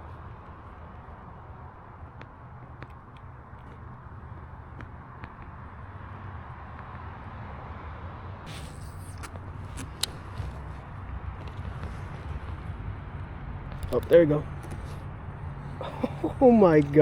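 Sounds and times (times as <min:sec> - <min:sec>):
burst of hiss: 0:08.5 - 0:09.3
sharp clicks: 0:08.5 - 0:11.9.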